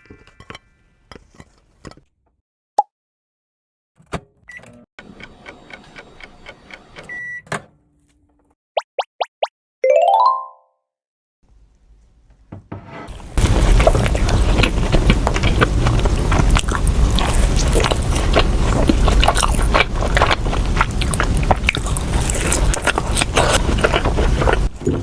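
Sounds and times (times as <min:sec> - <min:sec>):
biting and chewing doughnut: 0:13.4 - 0:25.0.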